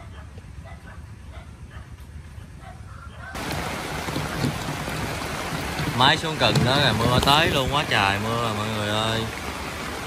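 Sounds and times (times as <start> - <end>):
heavy rain hissing: 3.4 - 10.0.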